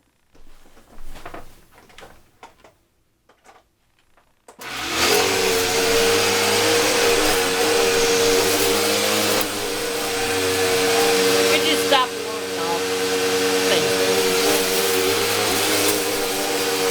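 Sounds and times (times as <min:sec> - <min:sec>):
vacuum cleaner motor whining: 0:04.6 - 0:16.9.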